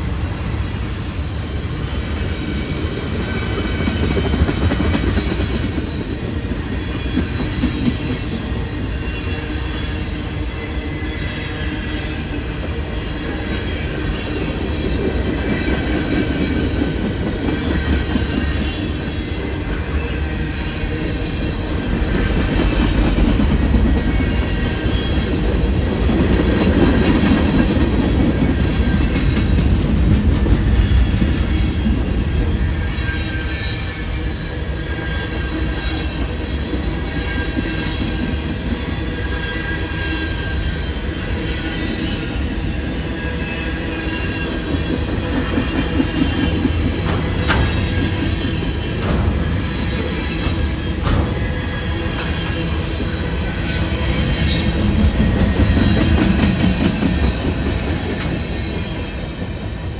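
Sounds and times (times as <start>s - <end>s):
train wheels rumbling on rail: 0.0s - 59.9s
high wheel squeal: 32.4s - 59.9s.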